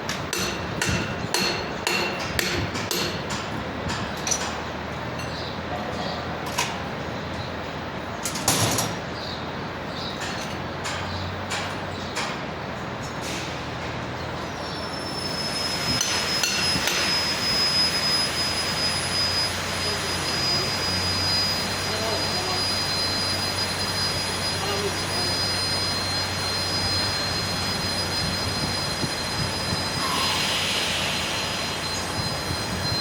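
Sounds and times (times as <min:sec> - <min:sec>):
tools clanking on metal: 0:00.1 - 0:06.8, 0:08.2 - 0:09.0, 0:10.0 - 0:12.4
power tool whine: 0:15.0 - 0:33.0.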